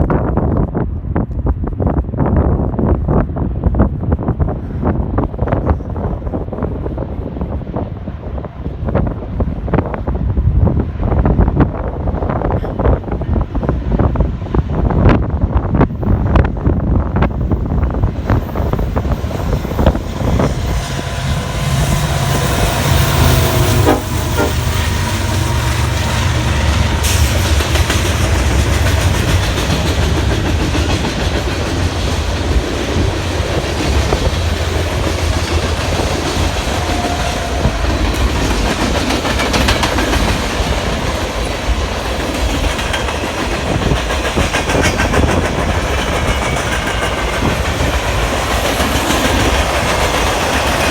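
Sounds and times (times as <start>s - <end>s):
diesel locomotives rumbling: 0.0s - 50.9s
train wheels clattering: 17.2s - 50.9s.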